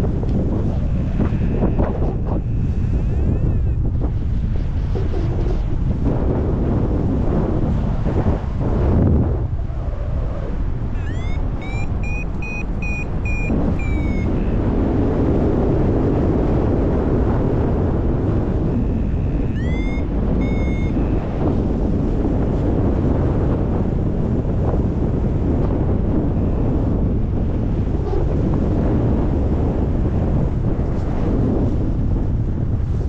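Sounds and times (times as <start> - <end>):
wind rushing over microphone: 0.0 - 33.0
variometer beeping: 11.0 - 14.4, 19.5 - 21.2.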